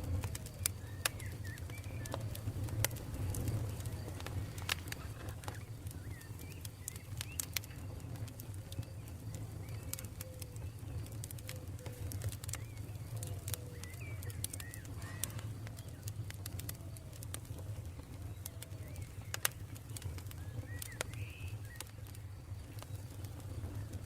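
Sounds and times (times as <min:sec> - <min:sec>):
birds chirping: 0:00.0 - 0:24.0
campfire crackling and popping: 0:00.0 - 0:24.0
low rumble of fire: 0:00.0 - 0:24.0.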